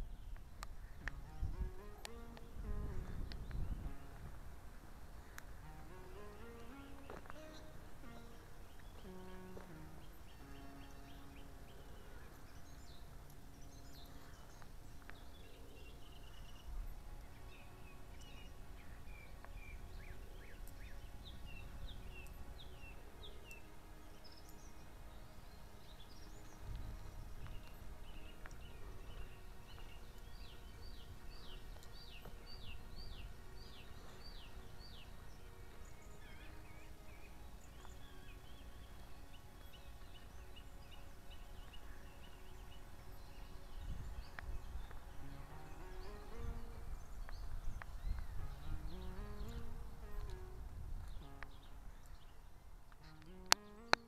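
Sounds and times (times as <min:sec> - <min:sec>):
wild birds chirping: 0:00.0 - 0:54.0.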